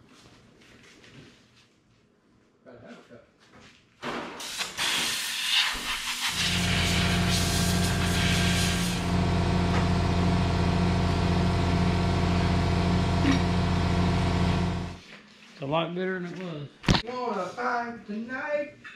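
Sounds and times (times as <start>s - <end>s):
machine humming steadily: 6.3s - 15.0s.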